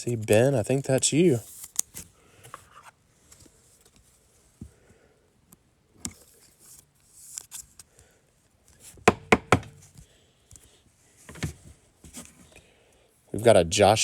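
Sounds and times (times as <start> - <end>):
trading cards rustling: 0.1 - 4.2
sharp knocks on table: 9.1 - 9.8.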